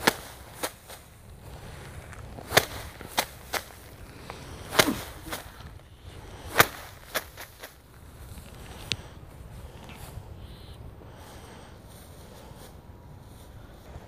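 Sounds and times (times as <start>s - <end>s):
rice stalks slapped by hand: 0.0s - 9.1s.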